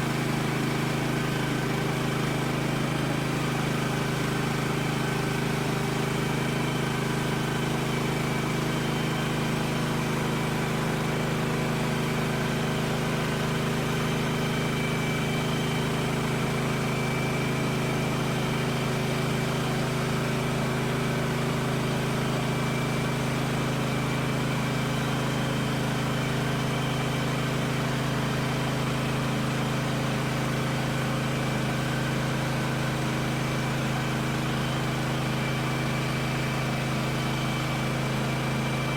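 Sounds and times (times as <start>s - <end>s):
sawmill gas engine running: 0.0s - 38.9s.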